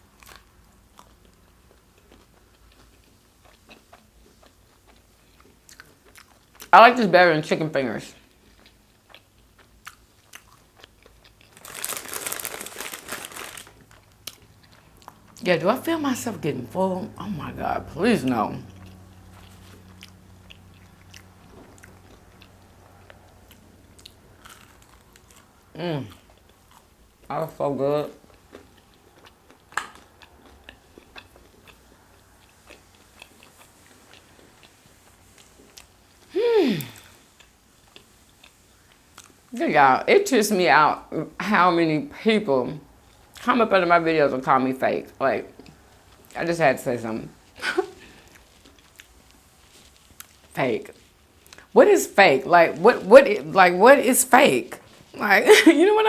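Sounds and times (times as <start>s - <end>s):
loud crunching while chewing: 0.1s - 6.7s, 8.3s - 15.4s, 18.6s - 27.3s, 28.2s - 39.5s, 47.8s - 51.7s.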